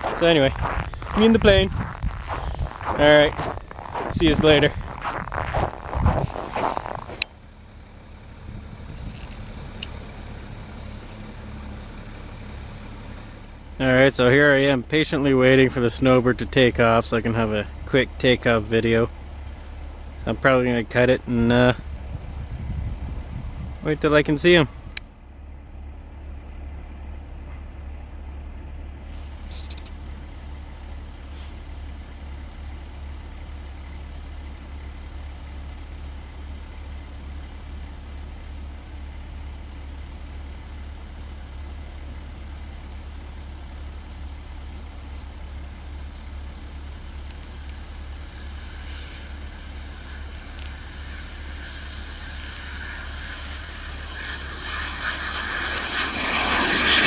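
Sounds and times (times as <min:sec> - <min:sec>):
low rumble: 0:00.0 - 0:17.9, 0:21.1 - 0:29.4
distant jet engine whine: 0:00.0 - 0:57.0.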